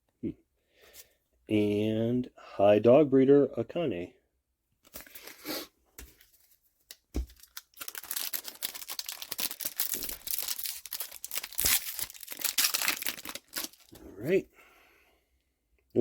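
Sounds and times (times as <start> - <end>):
wrapper tearing and crinkling: 6.9 - 14.0.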